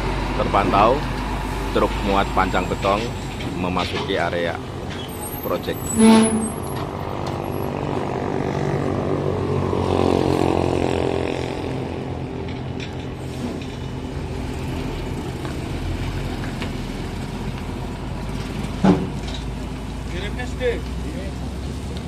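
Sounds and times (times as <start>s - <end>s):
truck diesel engine running: 0.0s - 7.6s.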